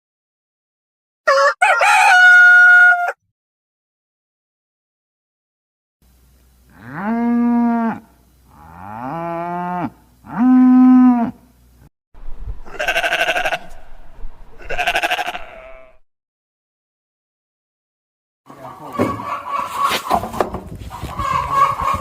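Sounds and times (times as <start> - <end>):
farm animal calls: 12.6 - 14.0, 14.6 - 16.0, 18.5 - 22.0
harsh quavering bleats: 12.7 - 13.9, 14.6 - 16.0.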